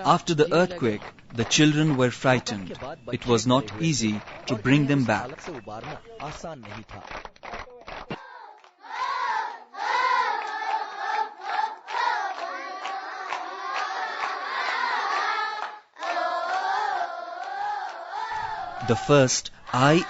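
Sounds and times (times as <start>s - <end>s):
hand claps: 0.0s - 8.8s, 10.4s - 16.6s
children singing in unison: 8.1s - 20.0s.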